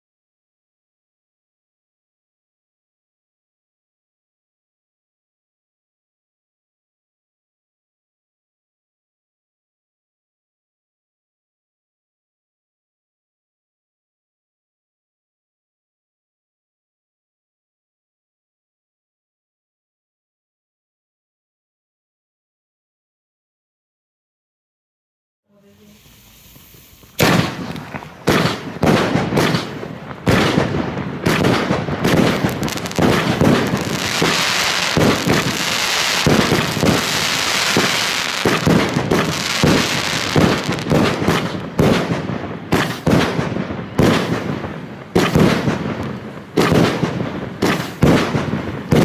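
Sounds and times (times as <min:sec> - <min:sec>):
firework crackling and hissing: 0:25.5 - 0:49.0
firework launch shots: 0:25.6 - 0:49.0.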